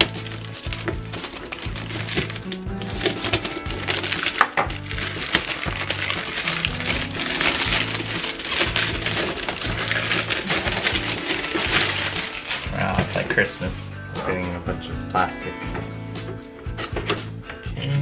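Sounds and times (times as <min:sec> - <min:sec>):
plastic packaging crinkling: 0:00.0 - 0:13.4
background music with bass line: 0:00.0 - 0:18.0.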